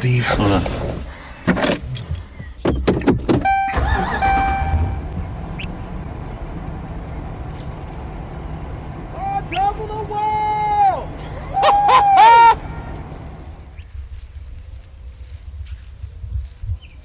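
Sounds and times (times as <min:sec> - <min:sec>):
vehicle engine rumble: 0:00.0 - 0:15.4
short electronic beeps: 0:03.4 - 0:05.7.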